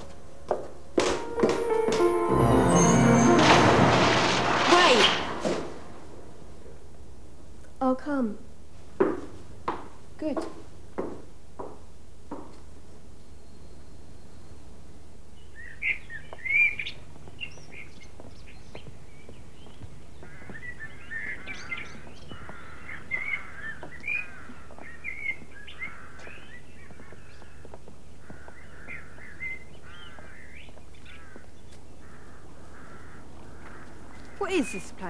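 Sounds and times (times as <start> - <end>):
birds chirping and warbling: 13.2 - 35.0.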